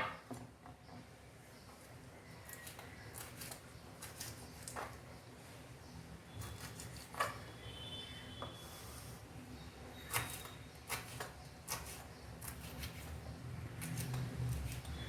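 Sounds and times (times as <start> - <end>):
knife cutting leaves: 2.4 - 5.0, 10.1 - 15.0.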